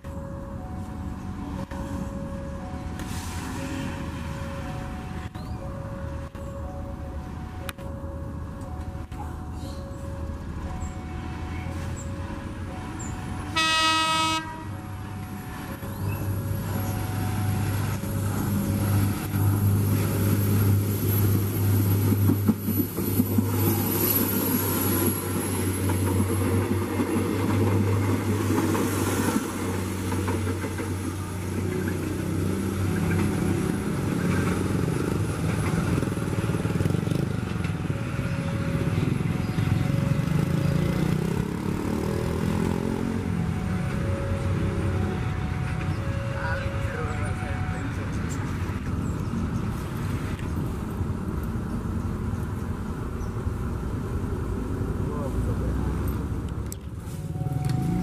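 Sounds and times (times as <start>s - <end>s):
diesel engine drone: 0.0s - 58.0s
wheels rumbling on rails: 0.0s - 58.0s
train horn blast: 13.4s - 14.9s.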